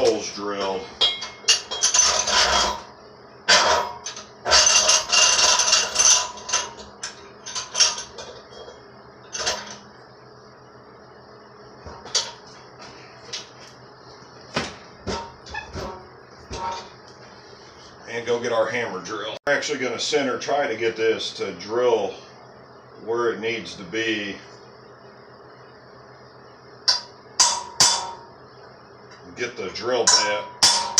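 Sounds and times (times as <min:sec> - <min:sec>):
tools and metal parts clattering: 0:00.0 - 0:02.9, 0:03.5 - 0:09.9, 0:11.9 - 0:13.5, 0:14.6 - 0:17.0.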